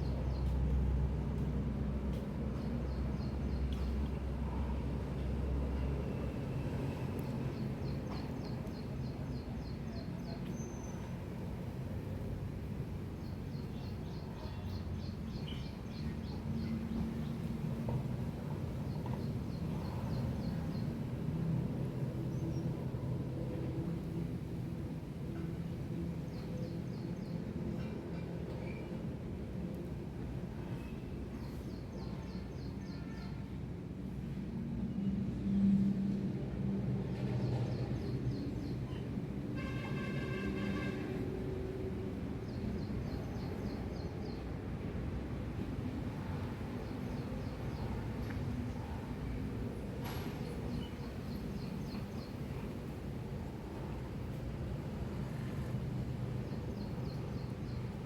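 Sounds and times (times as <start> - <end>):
distant traffic rumble: 36.4 - 58.0.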